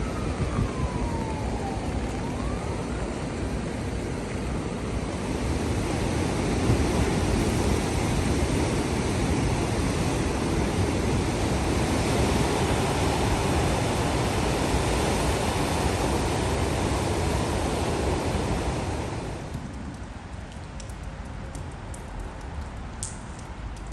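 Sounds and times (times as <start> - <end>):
heavy rain falling: 7.0 - 23.9
water drips: 19.5 - 23.9.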